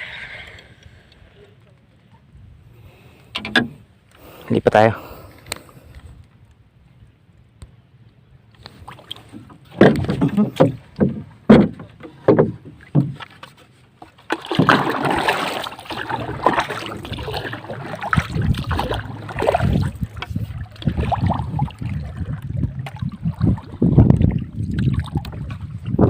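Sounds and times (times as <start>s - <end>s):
paddle knocks and splashes: 8.8s - 26.0s
water rushing: 14.3s - 26.0s.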